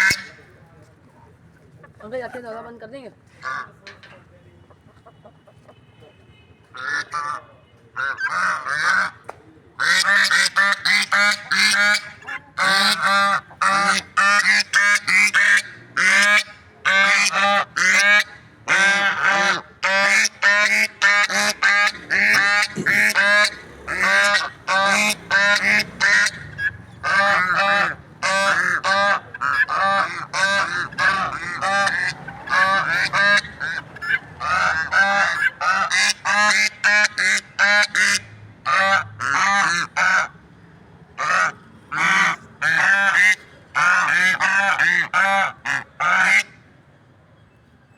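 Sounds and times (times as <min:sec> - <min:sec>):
guinea fowl calling: 0:08.0 - 0:09.2, 0:09.8 - 0:40.3.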